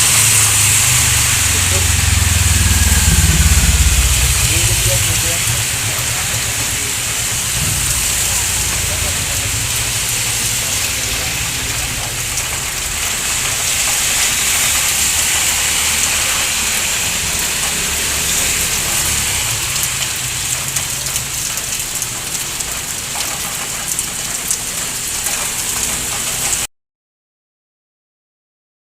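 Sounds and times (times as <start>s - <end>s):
low rumble: 0.0s - 21.2s
heavy rain falling: 0.0s - 26.7s.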